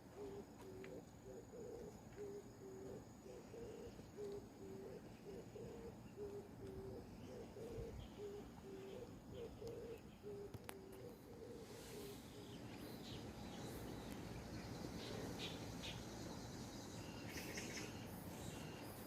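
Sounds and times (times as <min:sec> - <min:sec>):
dove cooing: 0:00.0 - 0:12.8.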